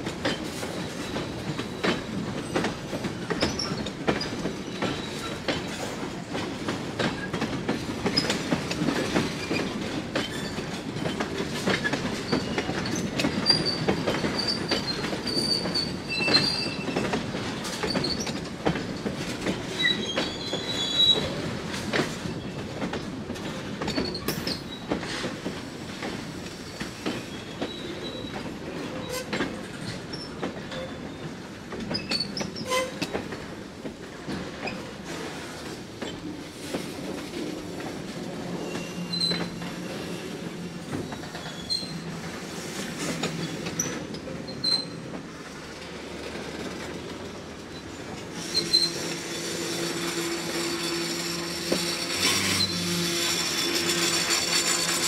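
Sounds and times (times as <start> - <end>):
train rumble: 0.0 - 55.0
wheel squeals: 12.3 - 17.1, 19.8 - 21.4, 38.5 - 40.4, 41.0 - 42.1, 47.7 - 55.0.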